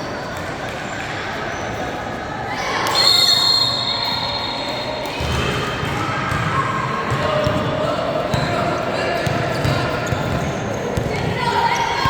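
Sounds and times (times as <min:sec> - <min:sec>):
crowd and player voices: 0:00.0 - 0:12.0
basketball bouncing on court: 0:05.2 - 0:12.0.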